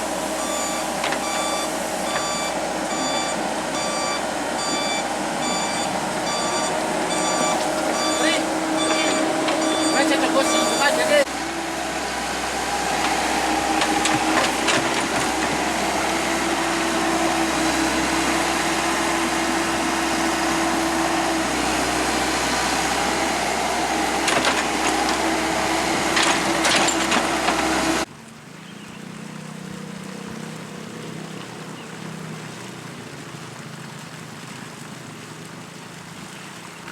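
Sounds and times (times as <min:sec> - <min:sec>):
excavator diesel engine: 0:00.0 - 0:28.1
hydraulics whining: 0:00.0 - 0:28.1.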